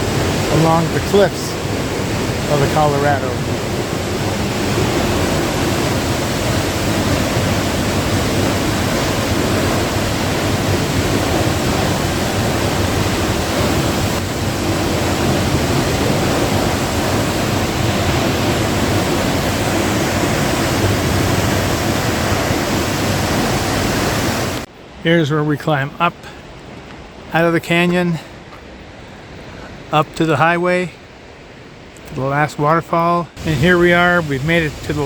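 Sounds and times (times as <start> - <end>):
waterfall rushing: 0.0 - 24.7, 33.4 - 35.0.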